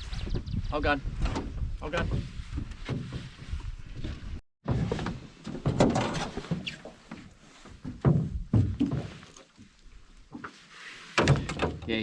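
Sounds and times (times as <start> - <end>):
thumps against boat hull: 7.9 - 9.2, 11.2 - 11.9.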